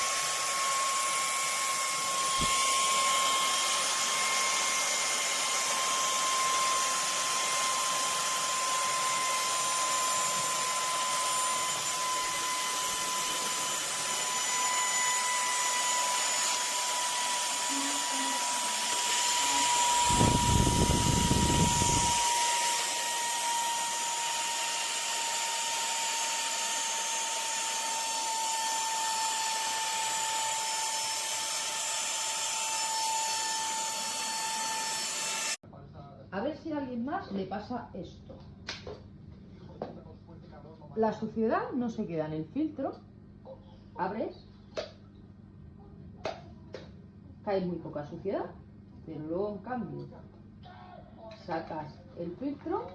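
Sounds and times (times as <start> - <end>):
vacuum cleaner motor whine: 0.0 - 35.6.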